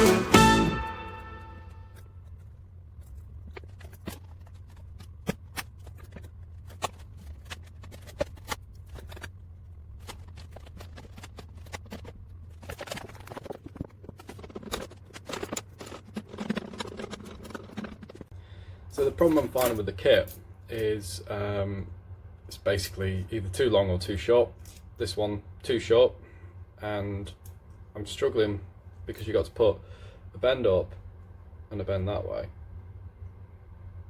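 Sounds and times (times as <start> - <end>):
steady low hum: 0.0 - 34.0
rustling: 1.7 - 18.3.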